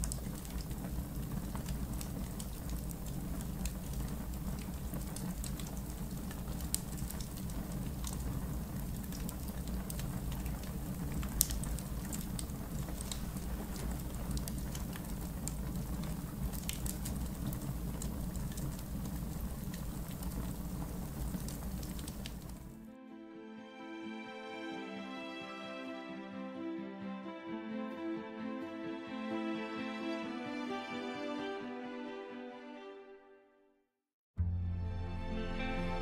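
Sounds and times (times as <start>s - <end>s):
campfire crackling and popping: 0.0s - 22.8s.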